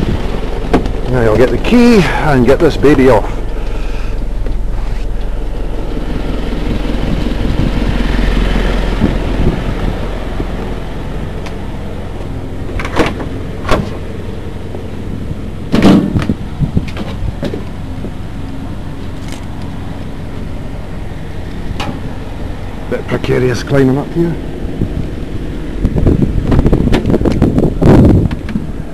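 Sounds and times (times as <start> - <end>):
vehicle engine idling: 0.0 - 28.9
sharp knocks and clanks: 0.4 - 1.6, 12.7 - 14.0, 15.7 - 18.2.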